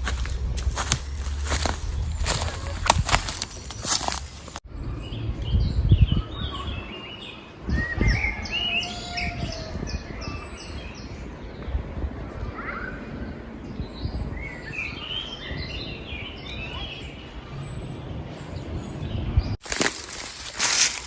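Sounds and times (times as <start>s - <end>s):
rustling footsteps: 0.0s - 4.6s, 19.6s - 21.0s
wild birds singing: 0.0s - 21.0s.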